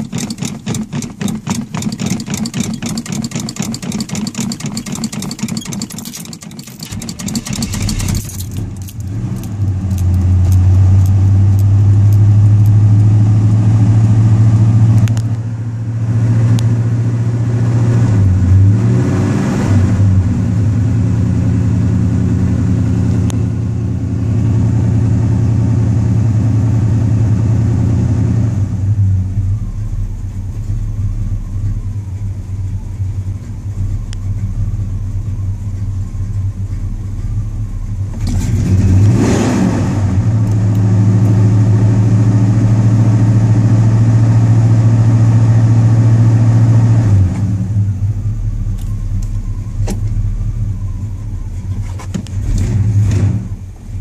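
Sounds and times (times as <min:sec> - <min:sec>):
car engine revving: 0:00.0 - 0:15.2, 0:33.8 - 0:48.4, 0:49.2 - 0:54.0.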